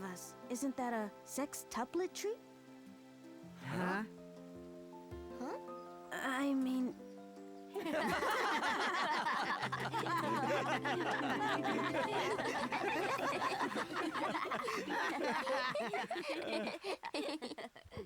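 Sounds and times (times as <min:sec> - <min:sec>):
people laughing together: 0:07.8 - 0:18.0.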